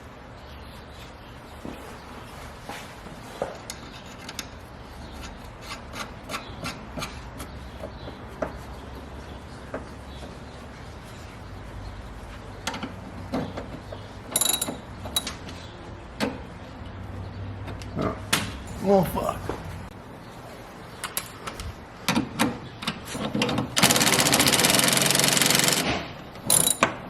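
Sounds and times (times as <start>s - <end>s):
hand tools clicking and scraping metal: 3.4s - 7.9s, 23.1s - 27.0s.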